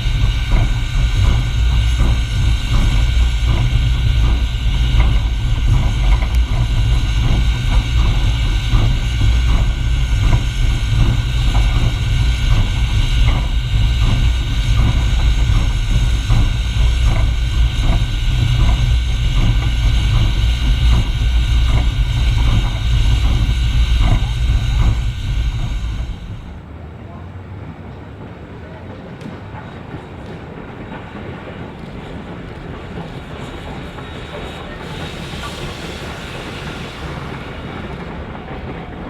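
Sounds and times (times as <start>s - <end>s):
regular rail clicking: 0.0s - 39.0s
train rumbling: 0.0s - 39.0s.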